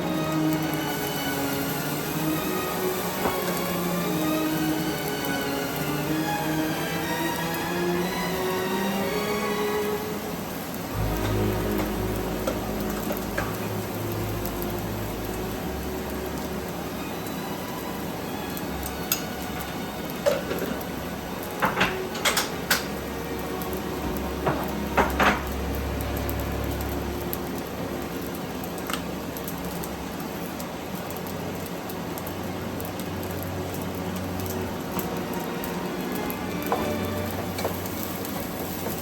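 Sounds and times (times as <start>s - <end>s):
dishes and utensils clinking: 19.1s - 20.9s, 21.6s - 23.0s, 36.6s - 39.0s.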